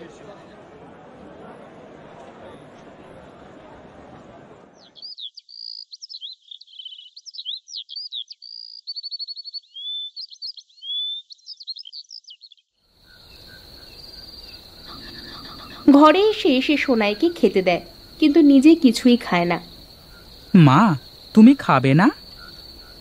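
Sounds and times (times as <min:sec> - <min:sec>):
songbird singing: 0:04.8 - 0:23.0
crickets trilling: 0:13.0 - 0:23.0.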